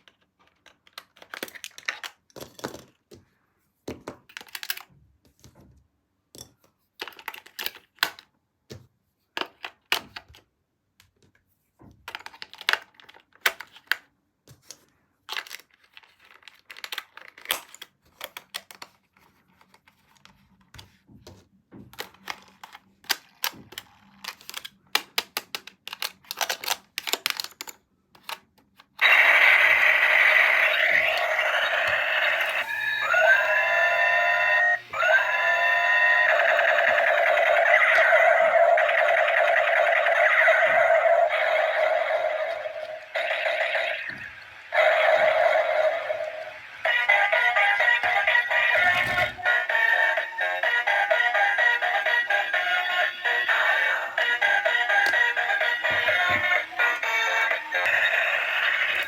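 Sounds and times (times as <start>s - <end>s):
plastic toy packaging crinkling: 0.0s - 3.0s, 4.2s - 5.0s, 12.1s - 14.1s, 14.7s - 20.6s, 22.0s - 33.4s
loud electronic toy sound: 29.0s - 59.0s.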